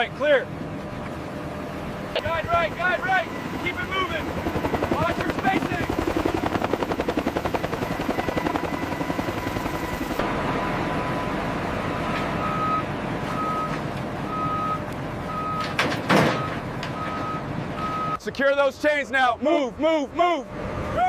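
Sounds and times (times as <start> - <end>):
heavy vehicle engine running: 0.0 - 5.2, 6.0 - 18.2, 20.4 - 21.0
helicopter rotor chop: 0.0 - 11.8
reversing alarm beeping: 12.4 - 18.2.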